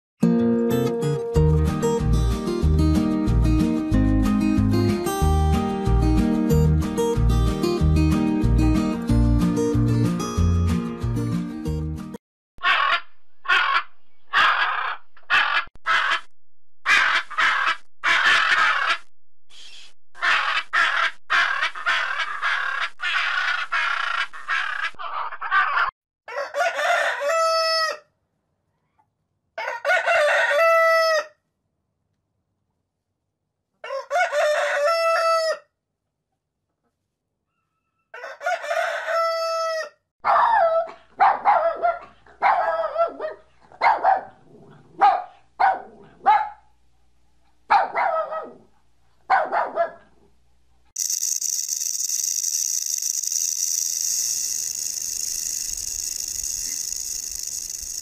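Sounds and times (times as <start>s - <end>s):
macaw squawking: 12.6s - 16.3s, 16.9s - 25.9s
rooster crowing: 26.3s - 28.0s, 29.6s - 31.4s, 33.8s - 35.7s, 37.6s - 40.0s.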